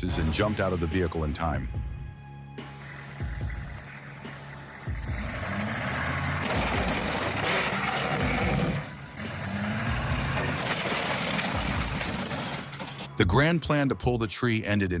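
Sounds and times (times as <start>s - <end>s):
vehicle engine running loudly: 2.8s - 13.1s.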